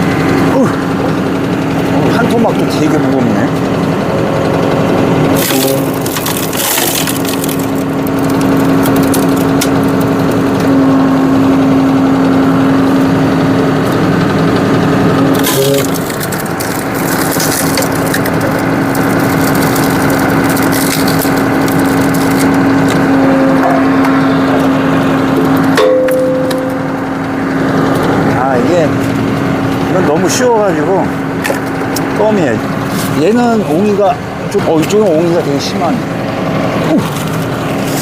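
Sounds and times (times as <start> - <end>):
tractor engine humming: 0.0 - 38.0
wood cracking and splintering: 5.2 - 10.7, 15.2 - 23.1.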